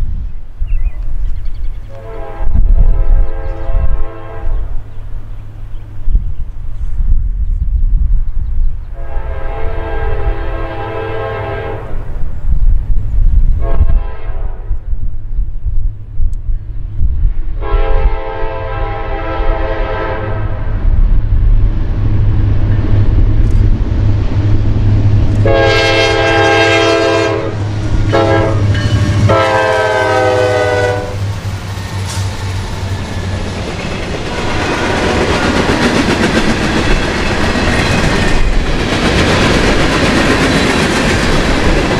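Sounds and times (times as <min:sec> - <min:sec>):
locomotive air horn blasts: 0:01.9 - 0:04.8, 0:09.0 - 0:12.0, 0:13.6 - 0:14.8, 0:17.6 - 0:20.7, 0:25.4 - 0:31.2
low engine rumble: 0:19.6 - 0:41.9
train wheels clattering on rail: 0:27.5 - 0:41.9.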